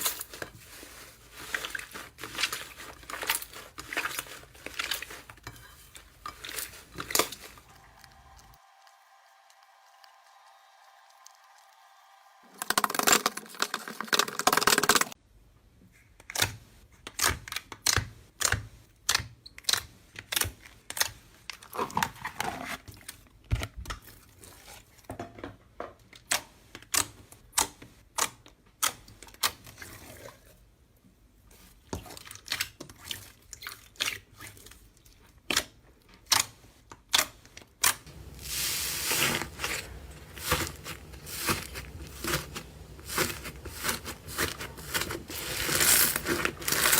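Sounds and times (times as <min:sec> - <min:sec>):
slime crackling and popping: 0:37.8 - 0:46.9.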